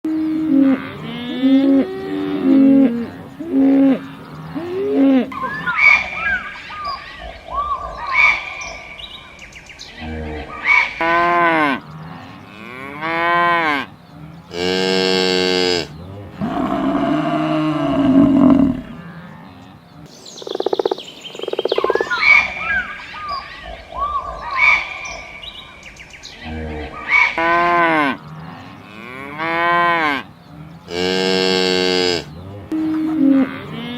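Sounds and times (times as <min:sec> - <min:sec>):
cows mooing: 0:00.1 - 0:05.6, 0:11.0 - 0:19.6, 0:26.4 - 0:33.9.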